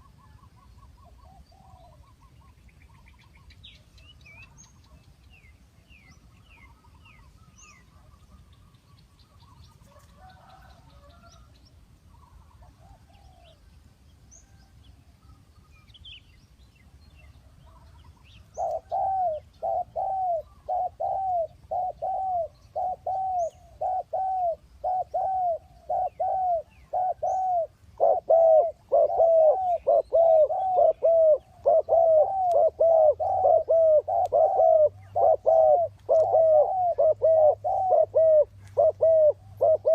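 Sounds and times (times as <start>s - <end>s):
dove cooing loudly: 18.6s - 39.9s.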